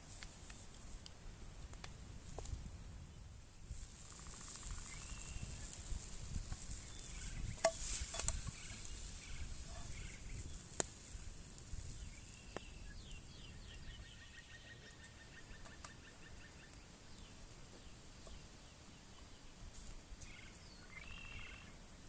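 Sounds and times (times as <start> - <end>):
high insect hum: 3.1 - 22.0
faint bird chirps: 4.1 - 5.9, 6.7 - 10.7, 11.8 - 19.6, 20.2 - 21.8.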